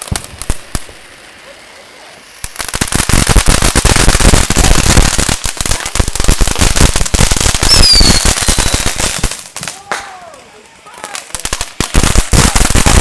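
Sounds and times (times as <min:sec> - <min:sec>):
firecrackers crackling: 0:00.0 - 0:13.0
high falling whistle: 0:07.7 - 0:08.3.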